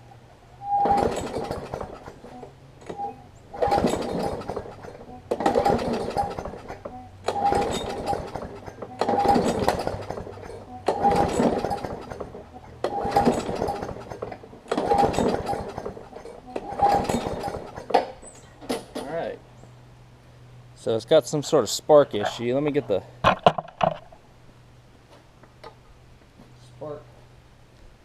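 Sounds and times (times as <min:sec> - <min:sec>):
mower recoil starter pulls: 0:00.6 - 0:19.2.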